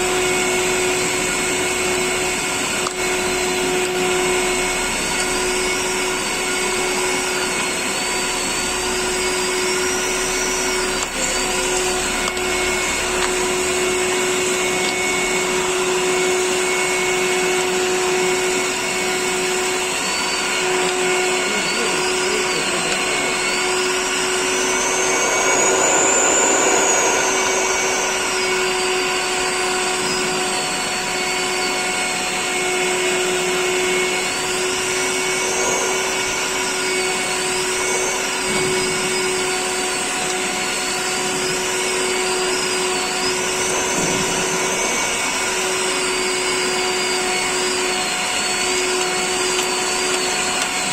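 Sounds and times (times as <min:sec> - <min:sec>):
industrial vacuum cleaner running: 0:00.0 - 0:50.9.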